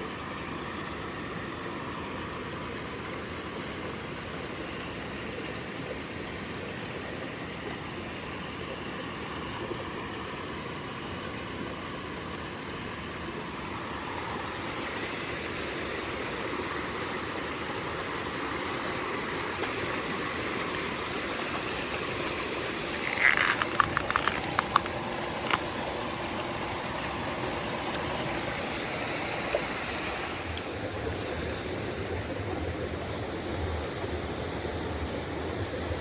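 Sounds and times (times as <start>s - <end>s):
stream flowing over rocks: 0.0s - 36.0s
sharp clicks: 22.9s - 25.7s.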